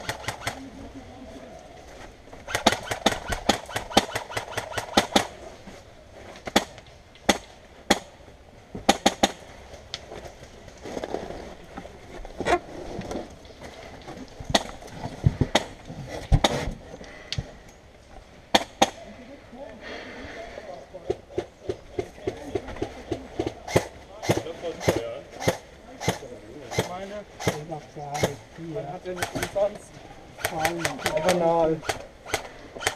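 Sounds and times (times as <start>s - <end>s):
airsoft guns firing: 0.0s - 0.7s, 2.4s - 5.4s, 29.1s - 29.6s, 30.4s - 32.9s.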